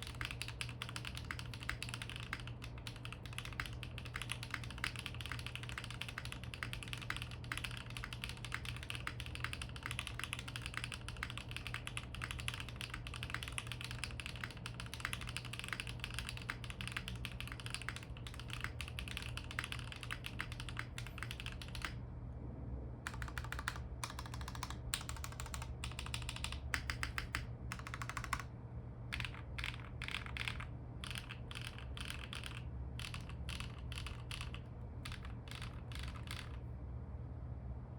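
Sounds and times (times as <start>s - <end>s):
fast mechanical keyboard typing: 0.0s - 22.0s, 23.1s - 28.5s, 29.1s - 36.7s
spacebar key presses: 23.1s - 28.5s, 29.1s - 36.6s.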